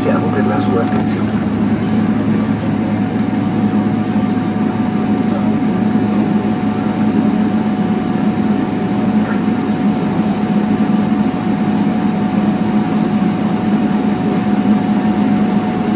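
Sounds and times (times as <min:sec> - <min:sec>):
aircraft cabin engine drone: 0:00.0 - 0:15.9
faint steady whine: 0:00.0 - 0:15.9.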